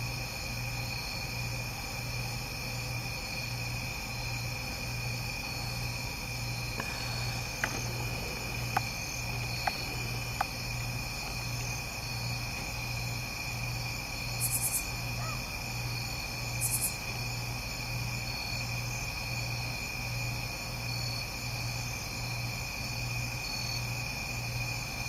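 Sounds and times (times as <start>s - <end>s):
insects trilling: 0.1s - 25.0s
low pulsing hum: 5.4s - 14.2s.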